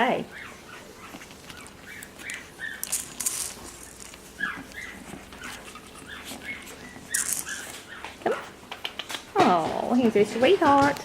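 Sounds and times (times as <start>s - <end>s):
puppies whining and yipping: 0.0s - 8.6s.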